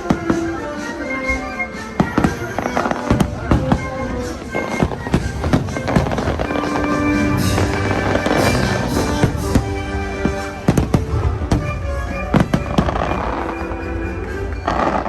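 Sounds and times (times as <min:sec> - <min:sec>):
music over loudspeakers: 0:00.0 - 0:15.0
fireworks bursting and crackling: 0:04.4 - 0:13.4.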